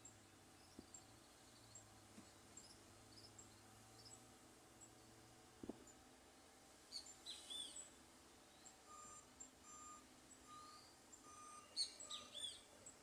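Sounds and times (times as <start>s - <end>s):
birds chirping: 0.0s - 6.0s, 6.8s - 13.0s
reversing alarm beeping: 8.8s - 12.5s.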